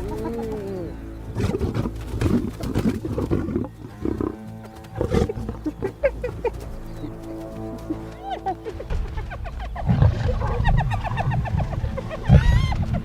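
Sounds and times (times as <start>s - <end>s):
lion growling and grunting: 0.0s - 9.0s
background music: 0.0s - 13.0s.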